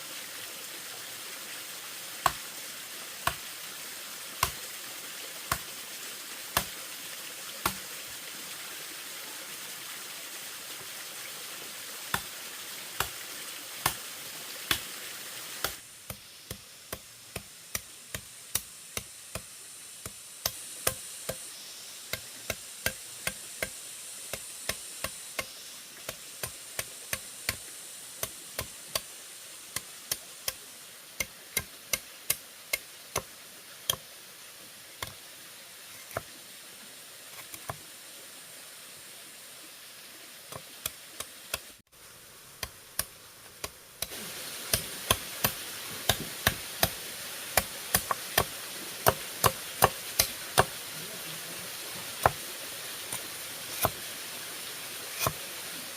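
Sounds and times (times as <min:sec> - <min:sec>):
steady background hiss: 0:00.0 - 0:55.9
blade chopping bamboo: 0:02.2 - 0:02.4, 0:04.4 - 0:04.6, 0:05.5 - 0:05.7, 0:06.6 - 0:06.8, 0:07.6 - 0:07.8, 0:13.8 - 0:14.0, 0:15.6 - 0:21.4, 0:22.1 - 0:27.6, 0:42.6 - 0:50.8, 0:52.2 - 0:52.4, 0:53.1 - 0:54.1, 0:55.2 - 0:55.4.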